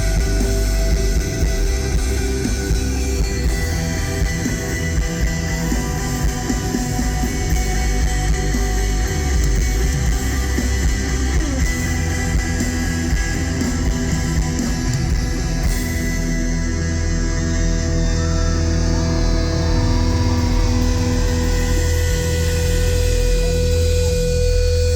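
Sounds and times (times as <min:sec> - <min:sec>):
electric guitar: 0:00.0 - 0:24.9
live rock band: 0:00.0 - 0:24.9.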